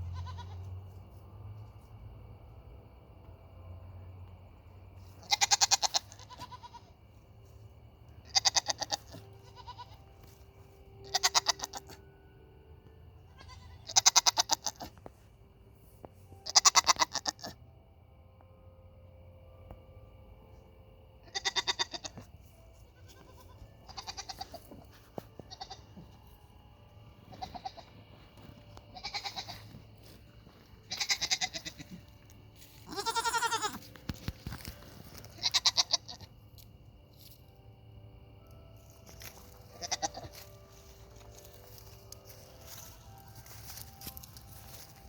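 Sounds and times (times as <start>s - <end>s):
goats bleating: 0.2s - 0.6s, 8.3s - 9.9s, 23.0s - 24.6s, 27.4s - 27.8s, 28.9s - 29.7s, 30.9s - 32.0s, 32.9s - 33.8s, 35.4s - 36.2s, 39.8s - 40.3s.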